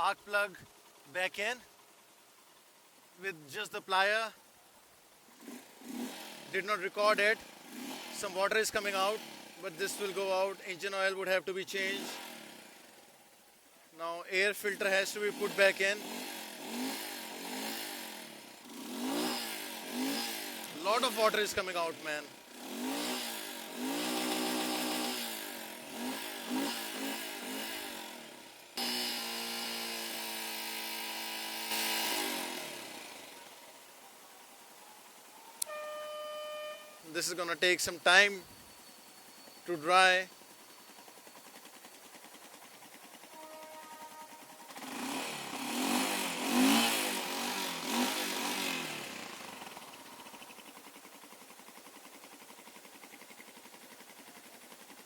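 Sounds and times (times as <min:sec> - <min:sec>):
motorcycle engine revving: 0:05.2 - 0:13.6, 0:14.3 - 0:34.1, 0:35.6 - 0:55.0.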